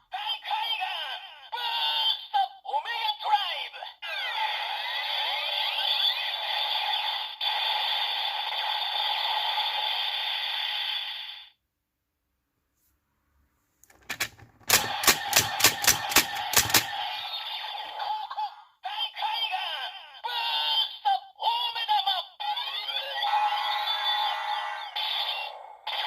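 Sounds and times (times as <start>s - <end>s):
thin electronic toy sound: 14.0s - 18.5s, 21.7s - 26.0s.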